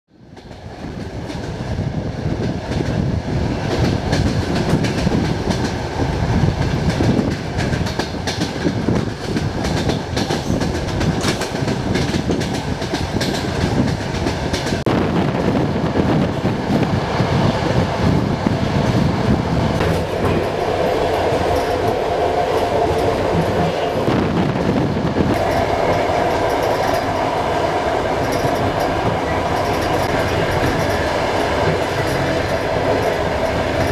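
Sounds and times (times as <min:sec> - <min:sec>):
train rumbling at speed: 0:00.1 - 0:33.9
wheels clattering over rail joints: 0:19.8 - 0:33.9.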